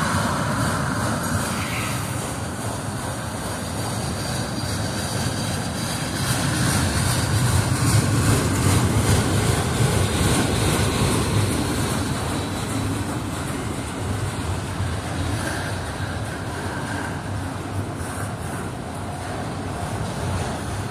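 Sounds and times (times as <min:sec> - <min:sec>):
freight cars rolling on rails: 0:00.0 - 0:20.9.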